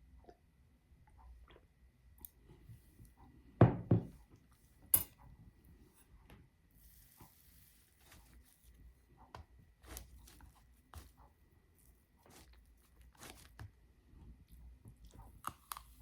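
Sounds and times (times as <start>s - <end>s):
hard objects knocking: 3.6s - 4.2s.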